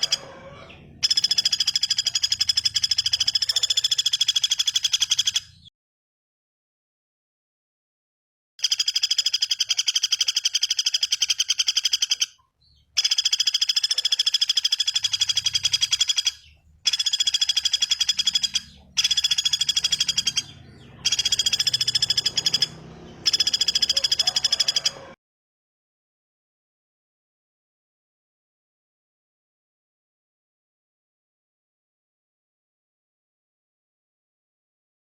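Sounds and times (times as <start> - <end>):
high-pitched bird trill: 0.0 - 5.7, 8.6 - 25.2.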